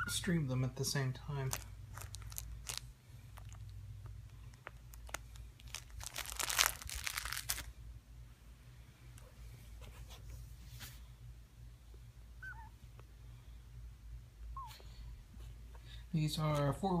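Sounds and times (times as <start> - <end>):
steady low hum: 0.0 - 17.0
crinkly material rustling: 1.2 - 7.8.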